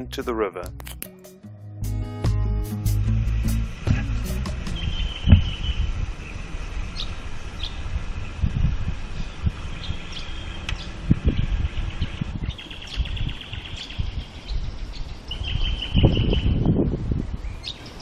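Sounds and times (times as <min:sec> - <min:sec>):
low rumbling thumps: 0:01.8 - 0:05.6
birds chirping and trilling: 0:03.1 - 0:18.0.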